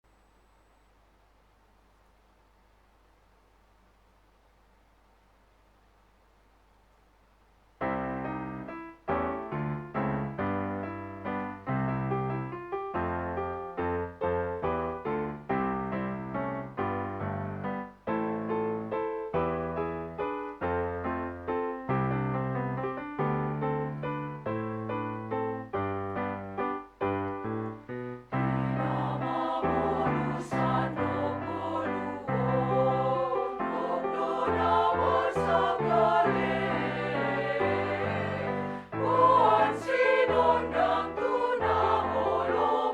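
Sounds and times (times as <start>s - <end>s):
women's choir singing: 28.4s - 42.9s.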